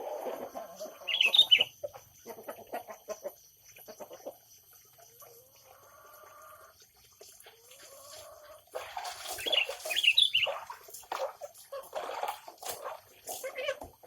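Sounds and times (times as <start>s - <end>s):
birds chirping and calling: 0.1s - 4.4s, 8.0s - 13.9s.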